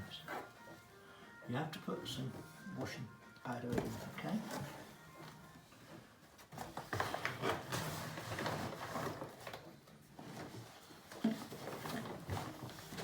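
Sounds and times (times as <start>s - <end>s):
plastic clattering and rustling: 3.6s - 13.0s.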